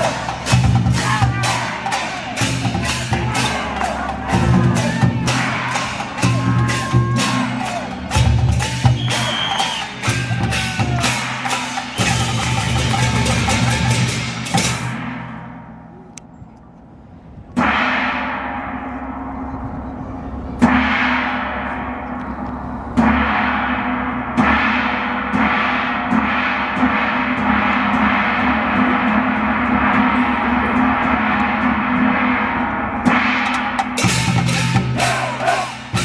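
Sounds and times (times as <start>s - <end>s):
large gong struck: 0.0s - 9.0s, 17.5s - 35.3s.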